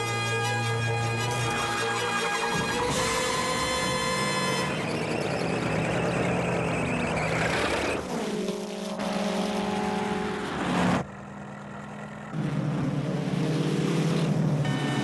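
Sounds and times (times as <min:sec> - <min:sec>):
engine and road noise: 0:00.0 - 0:15.0
approaching car hum: 0:04.5 - 0:15.0.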